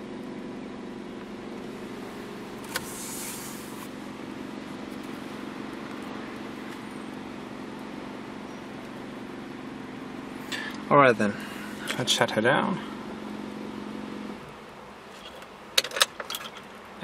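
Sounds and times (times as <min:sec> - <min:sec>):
car engine idling: 0:00.0 - 0:17.0
brief hiss: 0:02.7 - 0:03.9.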